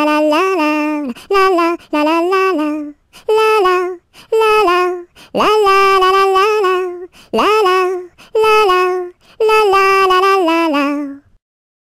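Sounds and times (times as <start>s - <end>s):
person singing unaccompanied: 0.0s - 11.4s.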